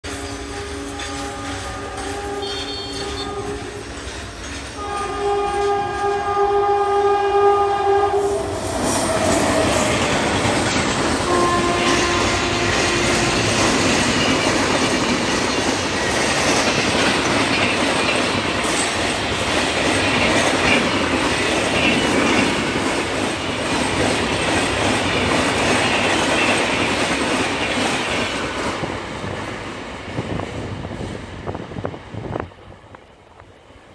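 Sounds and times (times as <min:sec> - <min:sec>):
passenger coaches rumbling by: 0:00.0 - 0:33.9
locomotive air horn blast: 0:00.1 - 0:03.8, 0:04.8 - 0:10.0, 0:11.2 - 0:13.8.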